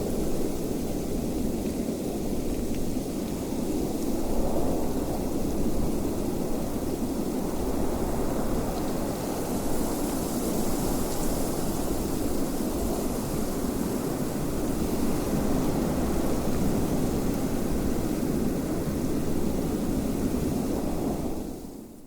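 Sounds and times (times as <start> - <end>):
wind blowing steadily: 0.0 - 22.0.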